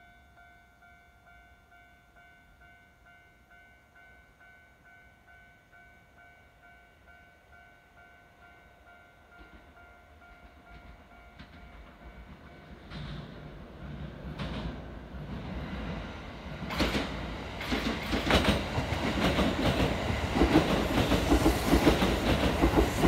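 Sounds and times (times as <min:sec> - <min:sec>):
train wheels clattering on rails: 0:09.4 - 0:23.0.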